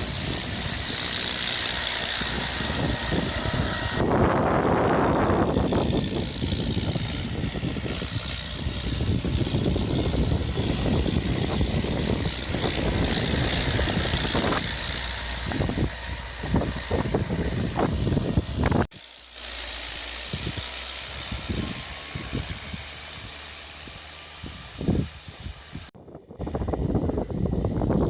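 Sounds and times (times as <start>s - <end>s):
hiss: 0.0s - 4.1s, 9.7s - 25.9s
tractor diesel engine running: 0.0s - 26.0s.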